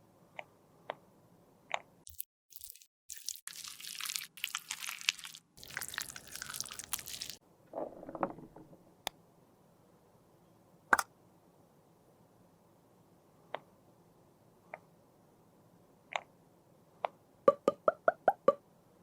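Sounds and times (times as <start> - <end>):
soft squish: 2.1 - 7.4
makeup crunching and crackling: 3.2 - 7.4.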